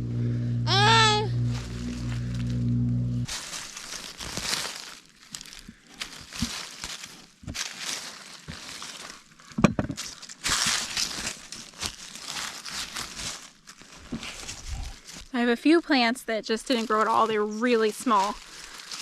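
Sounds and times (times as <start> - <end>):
digging through soil: 3.2 - 15.4, 16.6 - 19.0.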